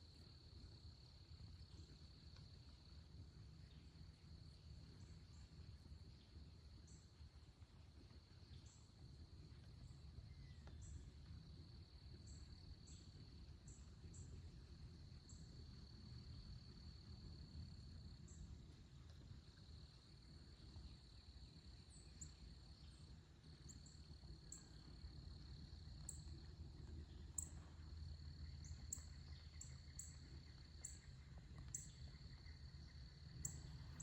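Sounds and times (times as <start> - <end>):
low steady rumble: 0.0 - 34.0
insect trill: 11.8 - 34.0.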